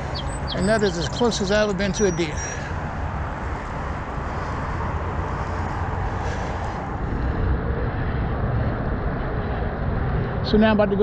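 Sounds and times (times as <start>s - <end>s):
wind on microphone: 0.0s - 11.0s
low rumble: 2.7s - 10.9s.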